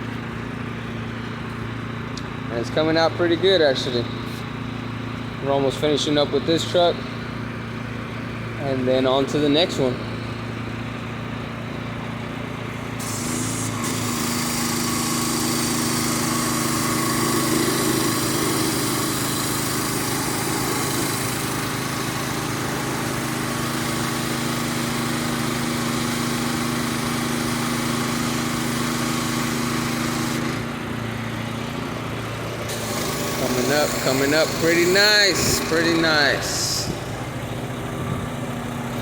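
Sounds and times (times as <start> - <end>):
pressure washer engine running: 0.0 - 39.0
high-pressure water spray hissing: 13.0 - 30.5, 32.7 - 37.6.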